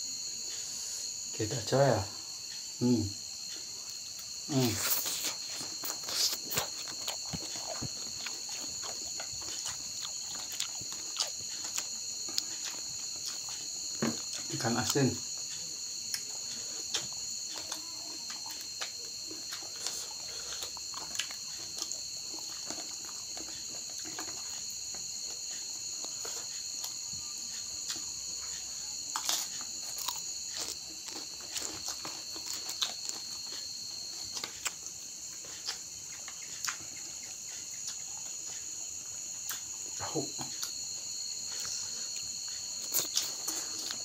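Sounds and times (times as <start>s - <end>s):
crickets chirring: 0.0s - 44.0s
chewing and crunching: 1.9s - 44.0s.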